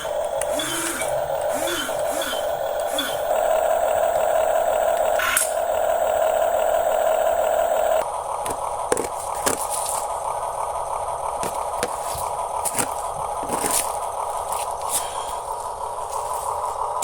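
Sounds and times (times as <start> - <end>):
small electric motors whining: 0.0 - 8.0.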